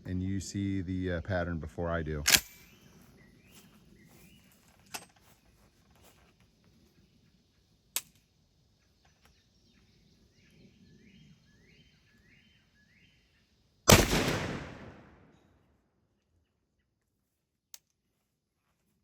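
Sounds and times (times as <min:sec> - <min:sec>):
sharp click: 0:02.2 - 0:02.8
shotgun blast: 0:13.9 - 0:15.3.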